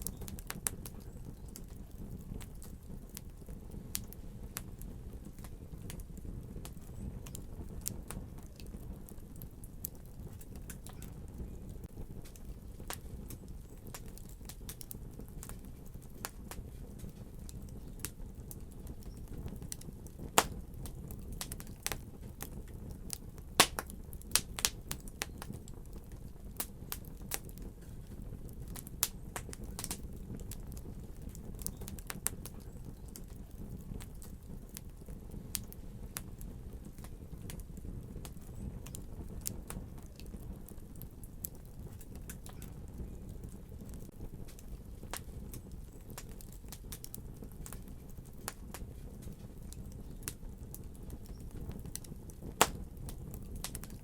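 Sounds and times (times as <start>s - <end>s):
fire crackles and pops: 0.0s - 54.0s
fire low rumble: 0.0s - 54.0s.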